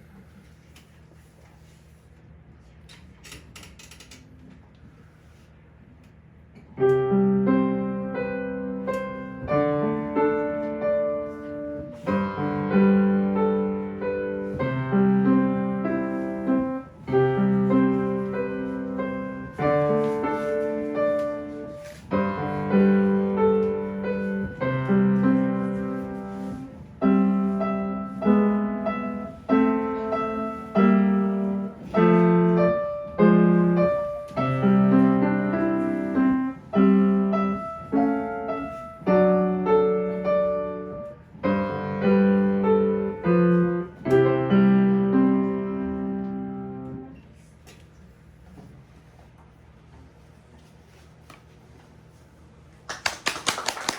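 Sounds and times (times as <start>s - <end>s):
solo piano melody: 6.8s - 47.2s.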